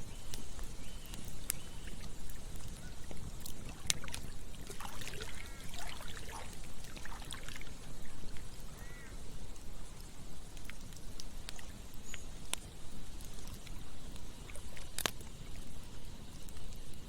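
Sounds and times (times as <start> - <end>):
stream running: 0.0 - 16.6
campfire crackling and popping: 0.0 - 17.0
water gurgles: 1.8 - 9.0.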